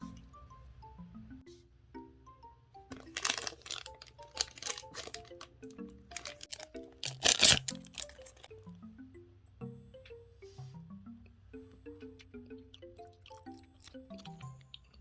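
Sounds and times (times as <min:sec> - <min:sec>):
light plucked background tune: 0:00.0 - 0:15.0
crunchy chewing of snacks: 0:02.9 - 0:08.6, 0:11.2 - 0:15.0.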